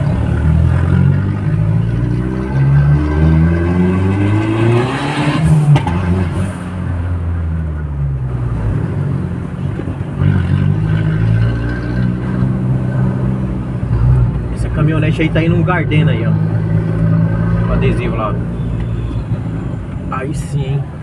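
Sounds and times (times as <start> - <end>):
turbocharged car engine accelerating: 0.0 - 7.0.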